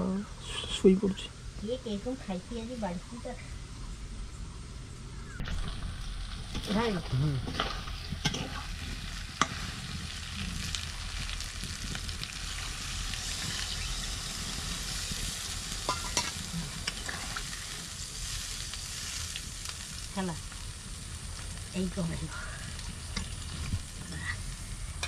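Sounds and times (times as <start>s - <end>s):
food sizzling in a pan: 5.4s - 25.0s.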